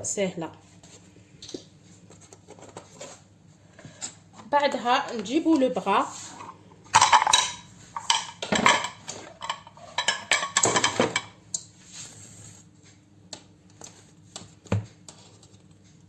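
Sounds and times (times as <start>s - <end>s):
utensils and dishes clattering: 6.3s - 11.4s.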